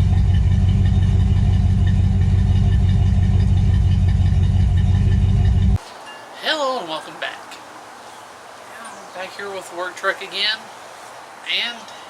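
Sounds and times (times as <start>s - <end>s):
vehicle engine idling: 0.0s - 5.8s.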